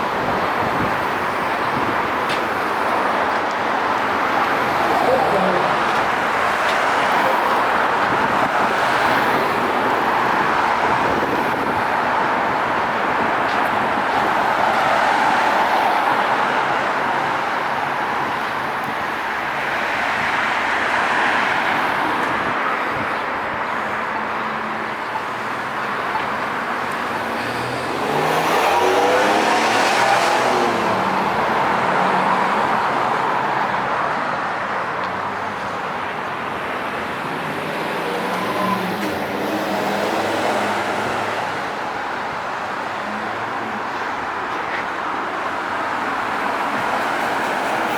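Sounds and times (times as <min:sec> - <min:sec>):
city road traffic: 0:00.0 - 0:47.9
loud vehicle passing: 0:27.1 - 0:34.1.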